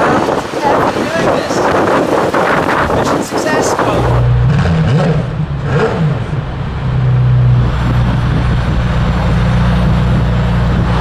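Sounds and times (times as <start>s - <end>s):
car engine revving and idling: 2.2s - 11.0s.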